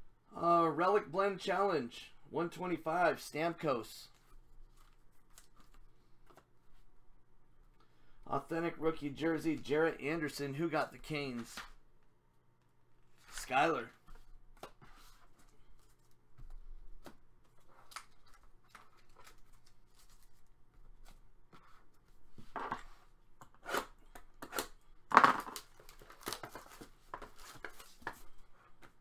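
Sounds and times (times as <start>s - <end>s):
foil wrappers rustling and crinkling: 17.6s - 20.6s, 25.5s - 28.2s.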